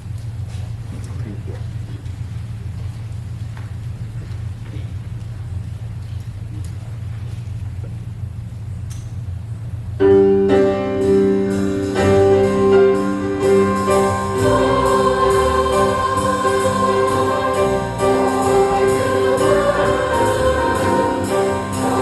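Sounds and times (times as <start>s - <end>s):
low hum: 0.0s - 22.0s
choir singing with band: 11.0s - 22.0s.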